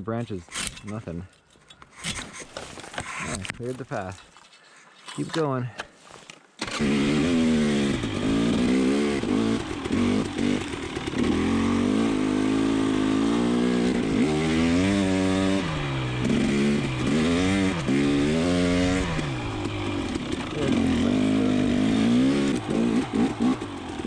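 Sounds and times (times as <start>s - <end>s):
dirt bike engine revving: 6.6s - 24.0s.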